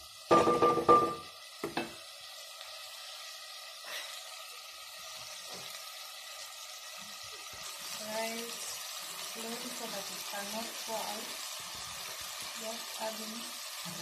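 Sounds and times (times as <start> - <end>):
vegetables sizzling in pot: 0.0 - 14.0
wooden spoon knocking pot: 0.3 - 1.9.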